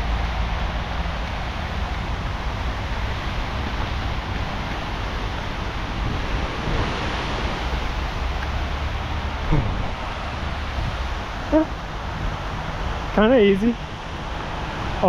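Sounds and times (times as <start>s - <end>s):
freeway traffic roar: 0.0s - 15.0s
wind on microphone: 0.0s - 15.0s.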